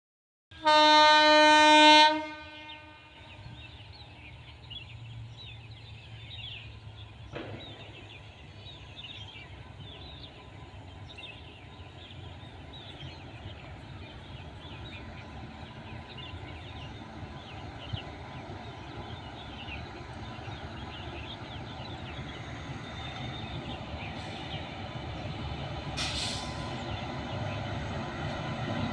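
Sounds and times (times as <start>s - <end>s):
train rumbling: 0.6s - 28.9s.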